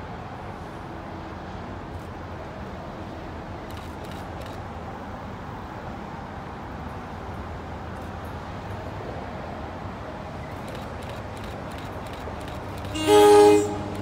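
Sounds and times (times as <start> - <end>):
outdoor background noise: 0.0 - 14.0
distant train rumble: 9.6 - 14.0.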